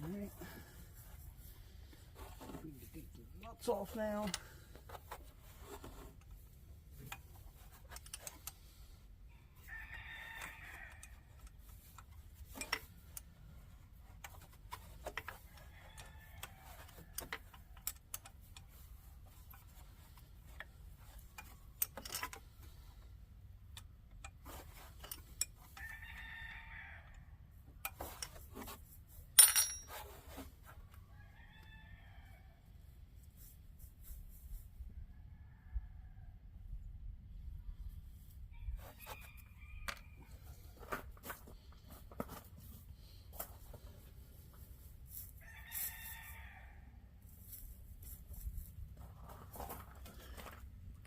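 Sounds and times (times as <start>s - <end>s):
rooster crowing: 25.8s - 27.2s, 45.4s - 47.0s
hand tools clicking on metal: 29.4s - 30.0s
sharp metallic clank: 29.4s - 30.0s.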